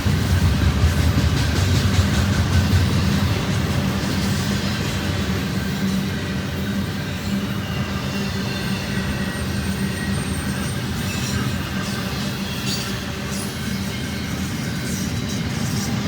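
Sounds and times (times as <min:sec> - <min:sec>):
train cars rumbling and clattering: 0:00.0 - 0:16.0
faint high wheel squeal: 0:05.1 - 0:16.0.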